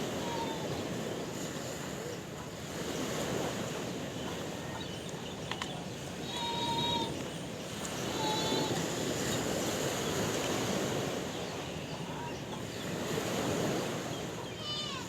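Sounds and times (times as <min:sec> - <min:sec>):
sea waves washing on shore: 0:00.0 - 0:15.0.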